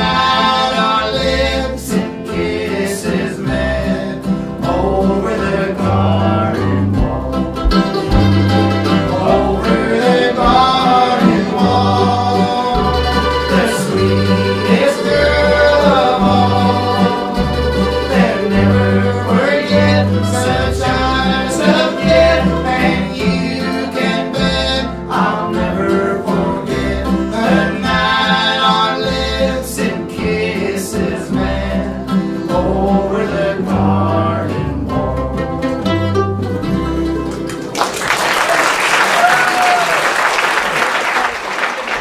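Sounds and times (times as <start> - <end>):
bass line: 0.0 - 37.7
banjo: 0.0 - 38.2
guitar: 0.0 - 38.2
fiddle: 7.2 - 24.4.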